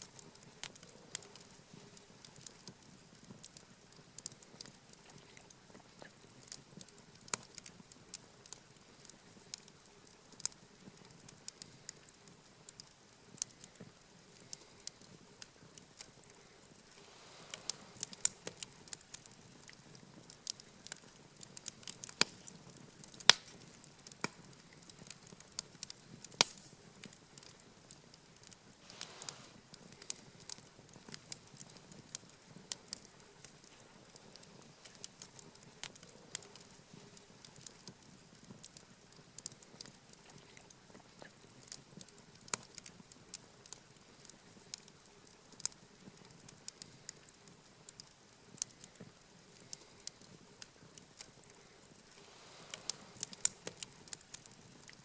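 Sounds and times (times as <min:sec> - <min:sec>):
campfire crackling and popping: 0:00.0 - 0:55.0
soft rush: 0:16.8 - 0:18.4, 0:28.8 - 0:29.6, 0:52.1 - 0:53.6.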